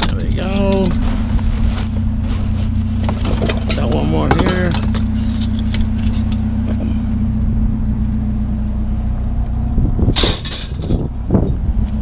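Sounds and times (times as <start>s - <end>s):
vehicle engine idling: 0.0s - 12.0s
loud clatter: 3.0s - 6.4s, 10.1s - 11.1s.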